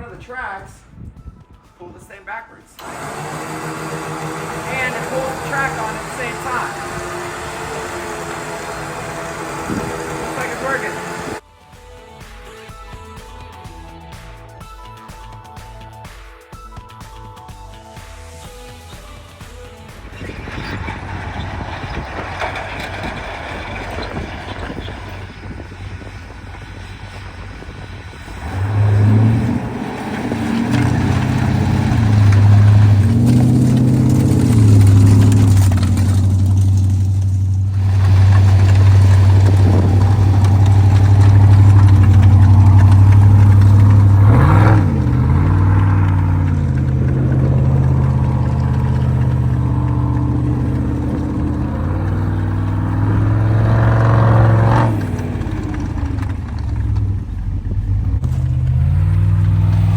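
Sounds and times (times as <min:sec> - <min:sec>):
vehicle engine revving: 0:02.8 - 0:11.4, 0:19.7 - 0:59.9.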